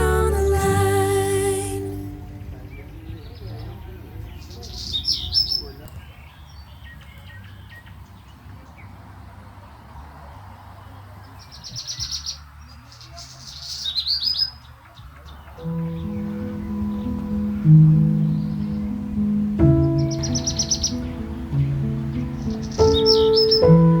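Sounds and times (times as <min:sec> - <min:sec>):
music: 0:00.0 - 0:03.2, 0:15.6 - 0:24.0
low steady background rumble: 0:00.0 - 0:04.6, 0:15.6 - 0:24.0
songbirds singing: 0:02.1 - 0:09.1, 0:10.2 - 0:24.0.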